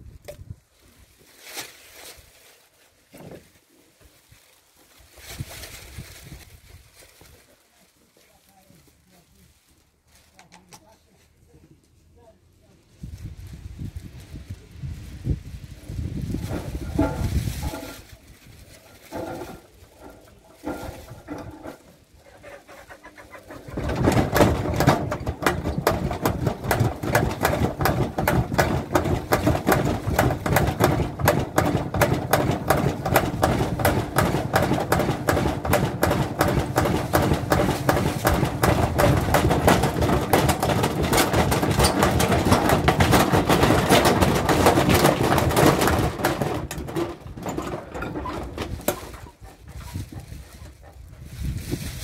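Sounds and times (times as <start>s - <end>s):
washing machine rattling and knocking: 16.2s - 22.2s, 22.8s - 50.4s.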